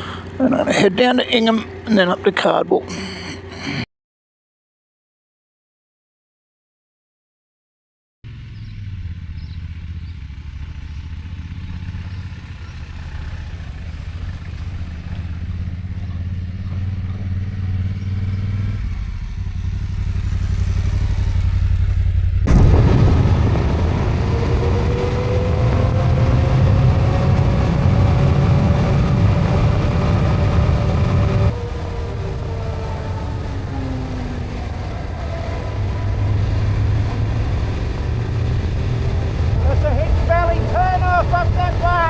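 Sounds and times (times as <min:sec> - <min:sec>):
motorcycle engine running: 0:00.0 - 0:02.4, 0:08.2 - 0:42.0
rising engine whine: 0:00.0 - 0:03.8, 0:08.3 - 0:42.0
rushing noise: 0:17.6 - 0:42.0.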